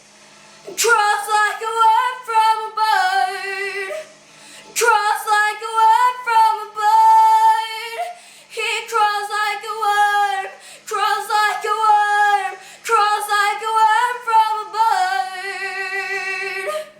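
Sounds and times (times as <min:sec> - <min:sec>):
woman singing unaccompanied: 0:00.7 - 0:04.1, 0:04.7 - 0:16.9
singer breathing: 0:04.0 - 0:04.8, 0:08.1 - 0:08.6, 0:10.6 - 0:10.9, 0:12.6 - 0:12.9.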